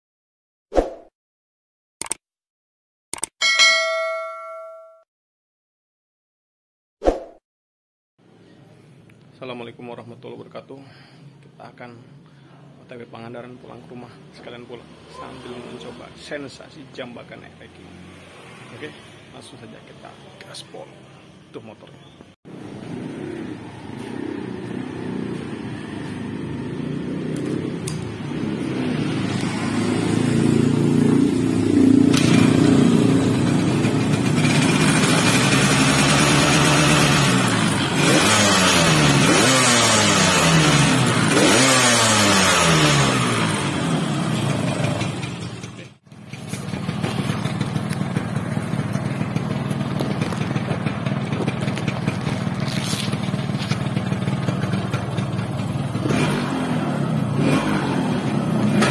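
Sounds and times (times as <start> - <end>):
motorcycle engine revving: 22.5 - 58.9.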